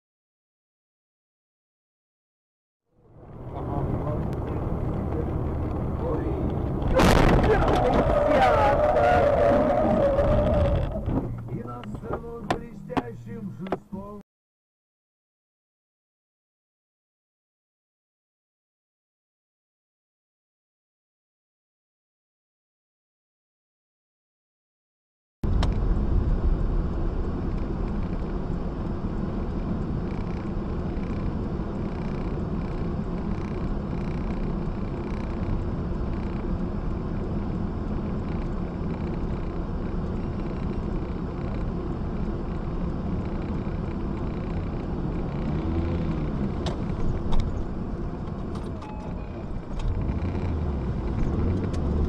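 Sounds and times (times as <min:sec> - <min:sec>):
car engine rumble: 0:02.9 - 0:14.2, 0:25.4 - 0:52.0
car cabin noise: 0:03.2 - 0:14.2, 0:25.5 - 0:52.0.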